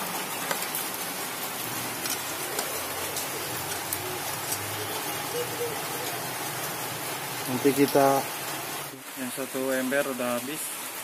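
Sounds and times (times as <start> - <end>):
rain drips and ticks: 0.0 - 11.0
rain falling: 0.0 - 11.0.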